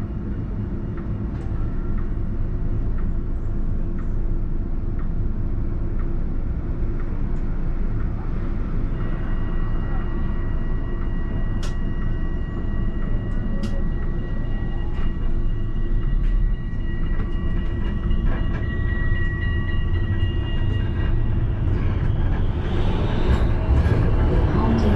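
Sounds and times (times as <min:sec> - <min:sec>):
tram rumbling on track: 0:00.0 - 0:24.9
high whine: 0:06.4 - 0:24.9.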